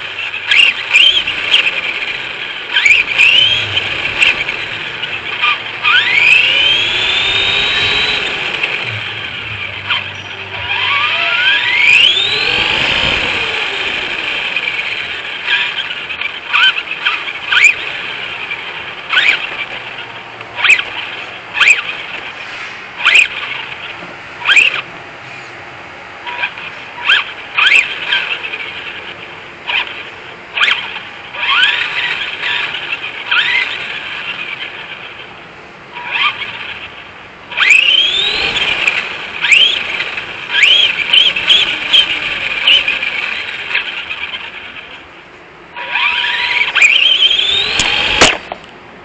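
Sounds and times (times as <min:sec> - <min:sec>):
electric motor whine rising: 0:00.0 - 0:25.5, 0:26.2 - 0:35.2, 0:35.9 - 0:45.0, 0:45.7 - 0:48.7
short squealing chirps: 0:02.7 - 0:17.9, 0:45.8 - 0:48.4.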